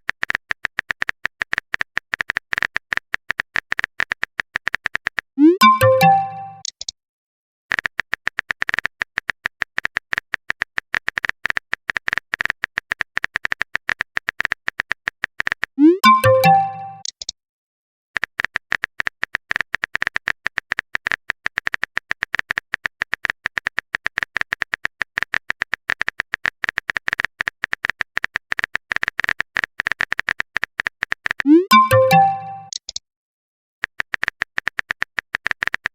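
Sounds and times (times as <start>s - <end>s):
typing sound effect clicks: 4.7s - 6.9s, 15.8s - 17.3s, 31.1s - 33.0s
rising notification chime: 5.4s - 6.6s, 15.8s - 17.0s, 31.5s - 32.7s.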